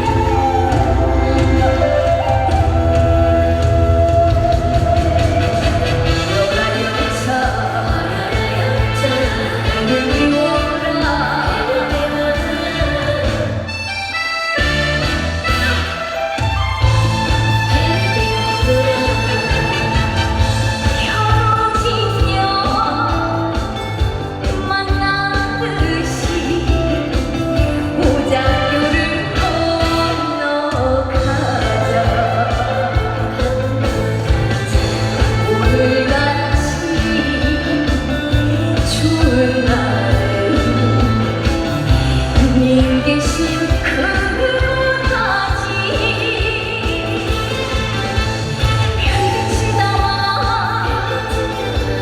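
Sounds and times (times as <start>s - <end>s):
woman singing: 0.0s - 14.2s, 16.8s - 52.0s
backing music with steady beat: 31.2s - 52.0s.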